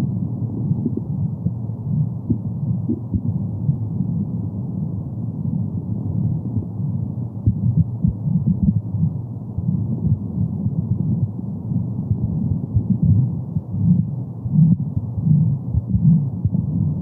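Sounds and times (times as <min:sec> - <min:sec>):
muffled low rushing noise: 0:00.0 - 0:17.0
heartbeat-like pulse: 0:00.6 - 0:03.8, 0:07.4 - 0:11.2, 0:12.1 - 0:17.0.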